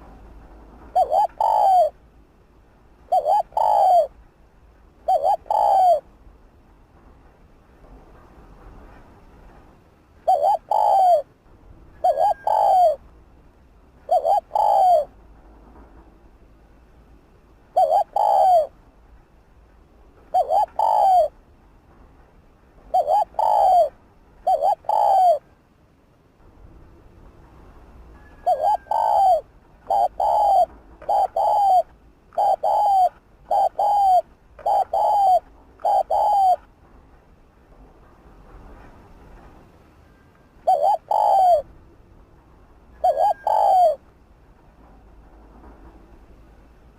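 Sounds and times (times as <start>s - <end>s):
dove cooing: 0.9s - 2.0s, 3.1s - 4.1s, 5.0s - 6.1s, 10.2s - 11.3s, 12.0s - 13.0s, 14.1s - 15.2s, 17.8s - 18.8s, 20.3s - 21.4s, 22.9s - 25.5s, 28.2s - 36.7s, 40.6s - 41.7s, 42.9s - 44.0s.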